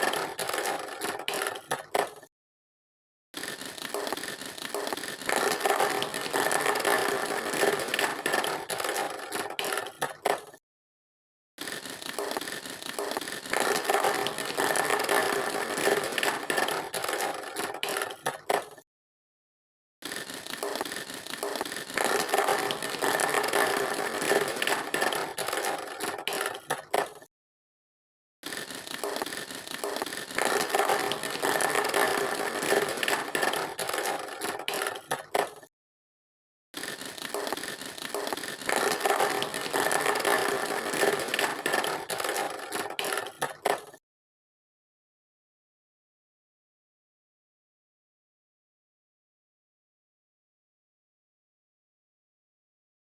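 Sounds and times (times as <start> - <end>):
plastic toy vehicles rattling: 0.0 - 2.3, 3.4 - 10.6, 11.6 - 18.8, 20.0 - 27.3, 28.4 - 35.7, 36.8 - 44.0.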